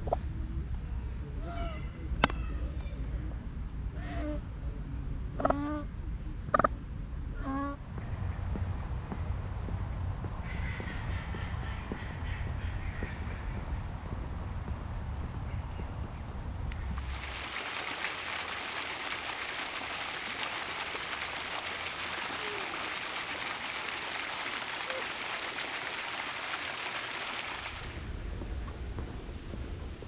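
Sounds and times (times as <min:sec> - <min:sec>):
running water rushing: 0:17.0 - 0:28.1.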